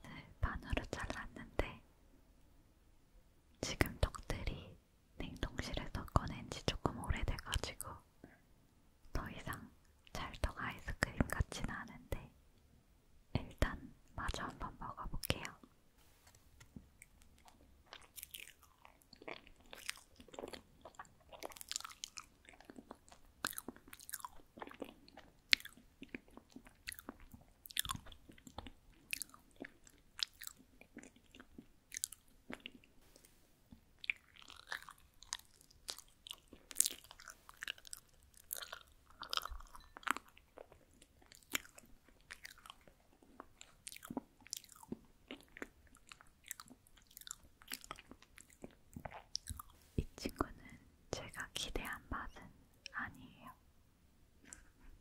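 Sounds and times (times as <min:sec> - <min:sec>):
person chewing rice cake: 0:17.0 - 0:49.9.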